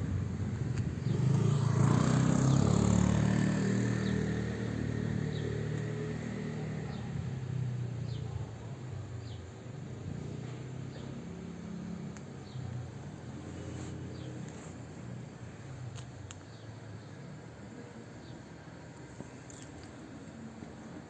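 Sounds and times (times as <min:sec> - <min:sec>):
vehicle engine passing by: 0:00.0 - 0:08.3.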